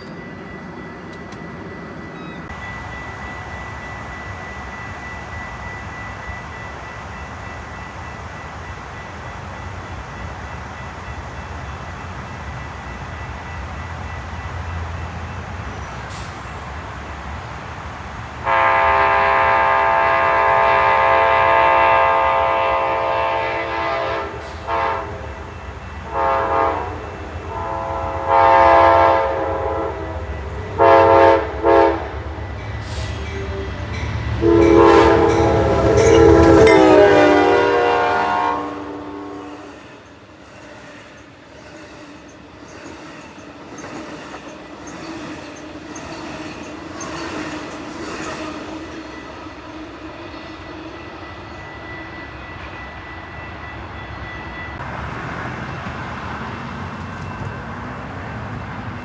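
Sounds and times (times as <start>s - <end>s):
low rumble of approaching train: 0.0s - 59.0s
locomotive air horn blasts: 18.4s - 25.3s, 26.0s - 32.2s, 32.8s - 39.6s.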